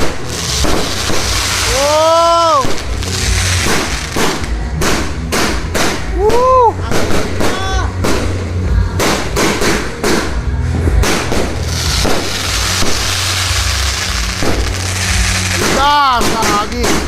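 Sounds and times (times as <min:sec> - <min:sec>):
fireworks banging: 0:00.0 - 0:17.0
low rumble: 0:00.0 - 0:17.0
person shouting: 0:01.6 - 0:02.7.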